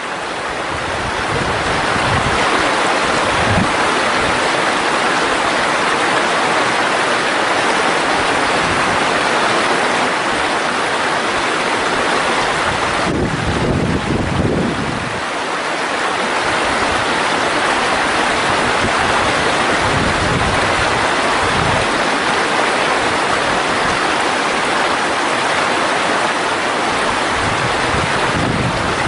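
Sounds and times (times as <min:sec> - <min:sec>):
stream flowing: 0:00.0 - 0:29.0.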